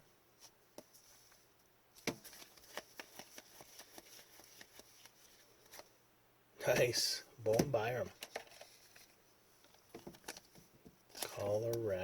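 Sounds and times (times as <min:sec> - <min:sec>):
trading cards clicking: 0:02.0 - 0:05.2.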